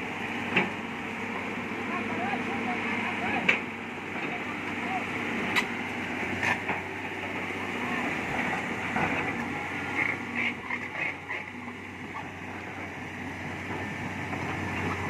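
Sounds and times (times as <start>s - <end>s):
diesel engine humming: 0.0s - 15.0s
faint voices: 1.2s - 5.8s, 6.7s - 12.9s.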